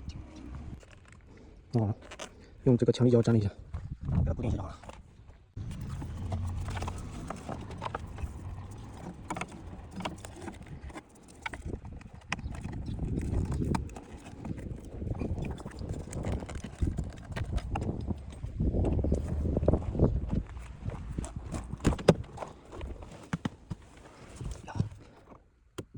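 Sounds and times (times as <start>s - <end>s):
low rumble: 5.6s - 10.9s.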